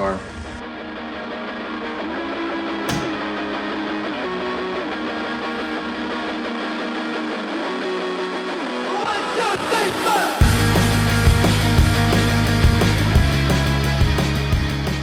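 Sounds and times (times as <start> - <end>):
strummed guitar music: 0.7 - 8.9.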